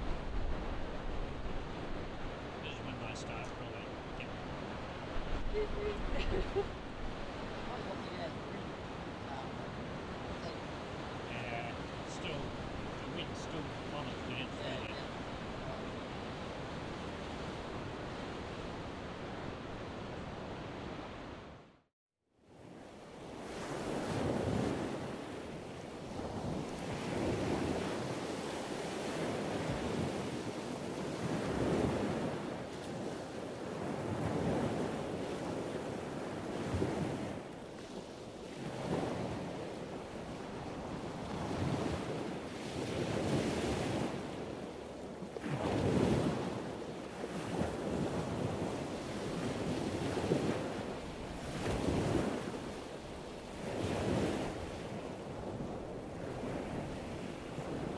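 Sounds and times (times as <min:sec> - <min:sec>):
wind buffeting microphone: 0:00.0 - 0:02.6, 0:26.1 - 0:57.9
sea surf breaking: 0:00.0 - 0:21.4, 0:23.2 - 0:57.9.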